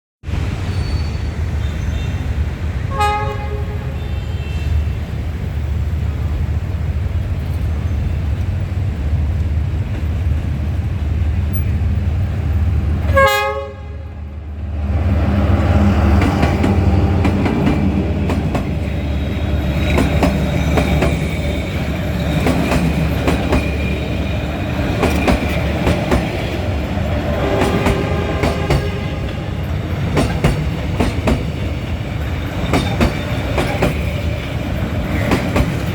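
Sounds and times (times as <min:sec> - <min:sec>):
train cars rushing past: 0:00.2 - 0:35.9
train horn blasts: 0:02.9 - 0:05.0, 0:13.1 - 0:14.3, 0:27.3 - 0:29.6
locomotive engine drone: 0:05.0 - 0:35.9
wheels clacking over rail joints: 0:15.4 - 0:35.9.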